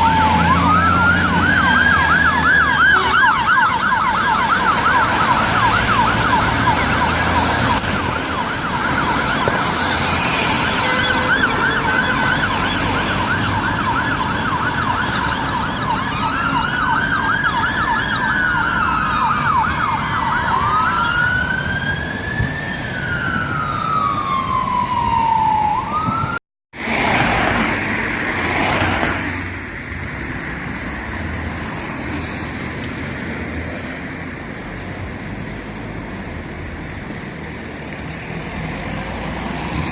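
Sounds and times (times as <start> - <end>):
fire engine siren: 0.0 - 27.6
engine and road noise: 0.0 - 39.9.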